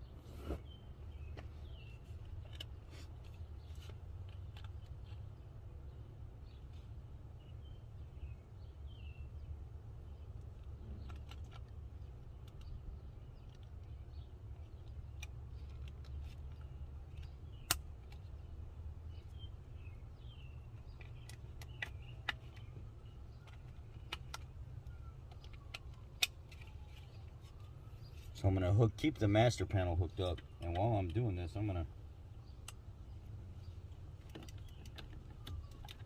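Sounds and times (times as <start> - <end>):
birds chirping: 0.0 - 36.0
clicks of plastic connectors: 10.4 - 12.8, 14.6 - 18.3, 20.8 - 27.6, 34.2 - 36.0.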